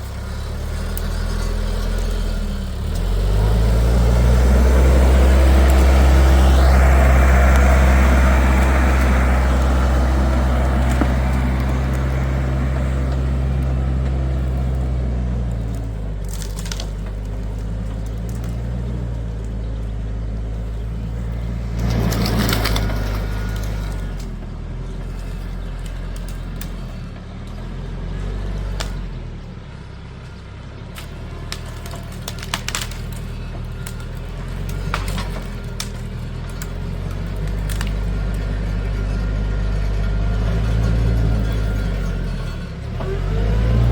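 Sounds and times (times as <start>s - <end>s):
large engine humming: 0.0s - 43.9s.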